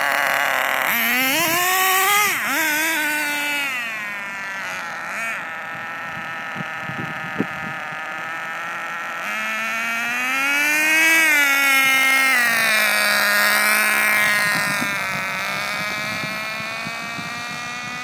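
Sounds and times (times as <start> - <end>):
rc car nitro engine buzzing: 0.0 - 18.0.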